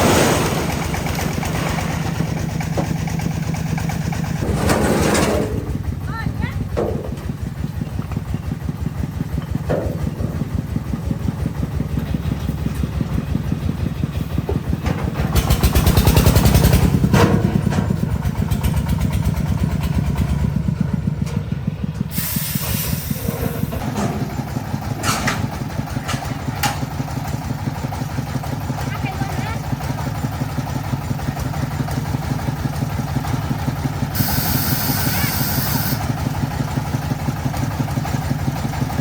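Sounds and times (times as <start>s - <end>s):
truck engine revving: 0.0s - 39.0s
hiss burst: 22.1s - 23.7s, 34.2s - 36.0s.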